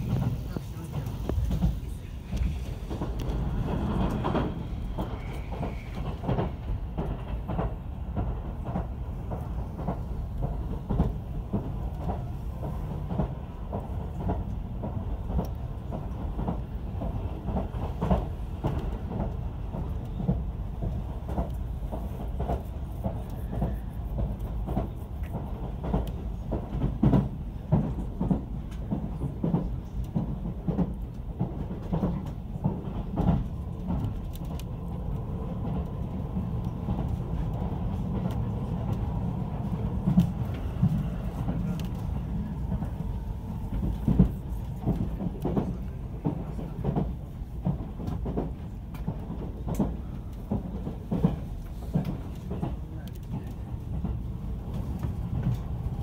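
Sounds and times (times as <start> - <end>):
train low rumble: 0.0 - 56.0.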